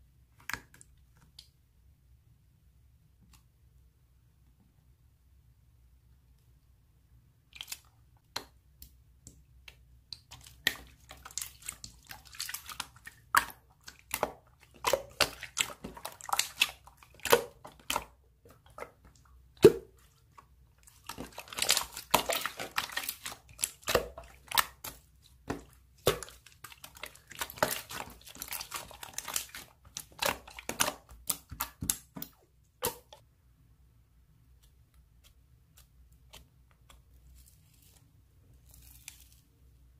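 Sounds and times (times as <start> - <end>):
slime squished by hand: 9.6 - 33.2.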